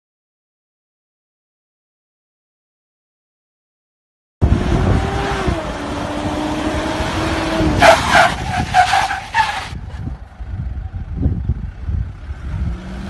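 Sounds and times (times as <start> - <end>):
engine droning at steady revs: 4.4 - 7.8, 9.8 - 13.0.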